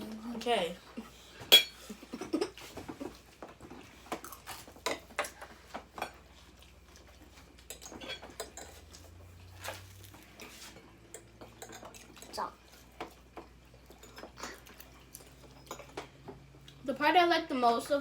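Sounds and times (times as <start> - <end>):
cutlery clinking on plates: 1.4 - 1.8, 7.6 - 9.1, 10.4 - 12.4.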